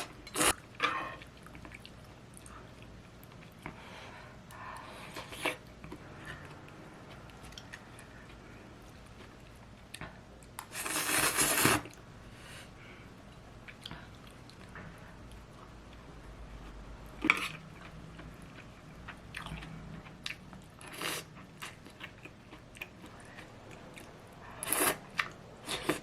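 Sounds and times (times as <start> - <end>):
quiet chewing with clicks: 0.6 - 3.8, 4.4 - 10.7, 13.2 - 24.2.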